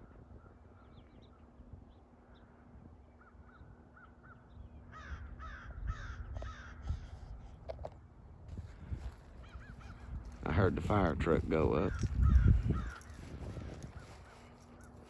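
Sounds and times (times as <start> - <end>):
crow cawing: 4.0 - 7.0, 9.4 - 10.3, 11.9 - 14.1.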